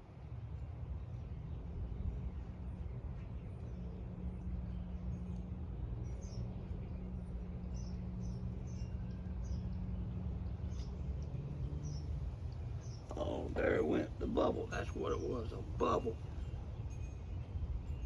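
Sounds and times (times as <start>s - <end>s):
steady low hum: 12.0s - 16.9s.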